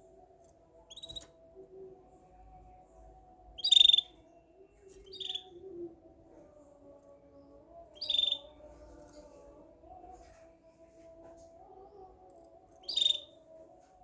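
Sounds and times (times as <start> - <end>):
bird chirping: 0.7 - 2.4, 3.5 - 5.9, 7.2 - 8.7, 11.9 - 13.5.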